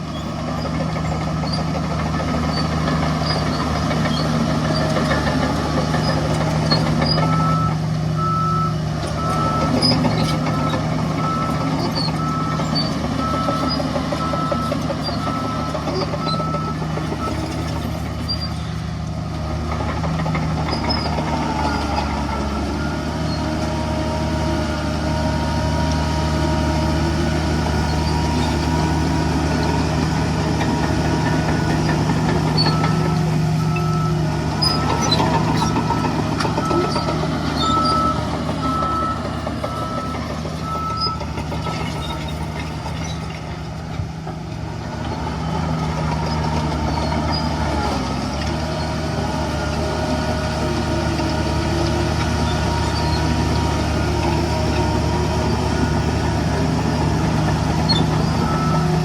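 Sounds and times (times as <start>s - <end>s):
diesel earthmoving machinery droning: 0.0s - 59.0s
reversing alarm beeping: 7.0s - 17.7s, 27.6s - 42.4s, 52.4s - 59.0s.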